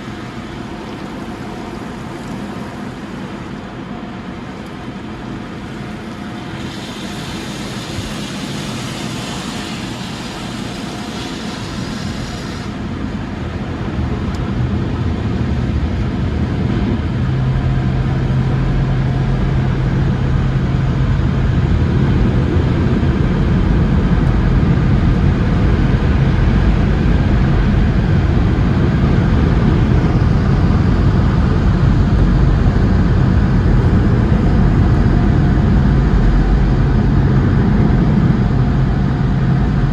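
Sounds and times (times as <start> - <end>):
water spray hiss: 0.0 - 14.3
dryer blowers roaring: 0.0 - 39.9
low hum: 0.0 - 39.9.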